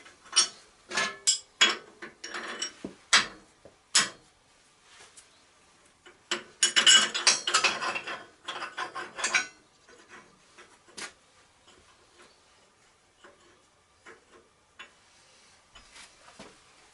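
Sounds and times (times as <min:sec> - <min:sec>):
metal tools clattering: 0:06.3 - 0:10.1.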